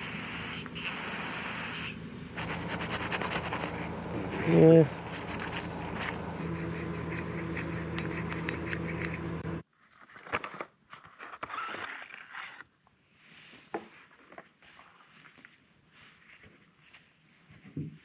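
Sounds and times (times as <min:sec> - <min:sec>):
steady hum with hiss: 0:00.0 - 0:09.6
small metal parts scraping and clicking: 0:05.1 - 0:09.3.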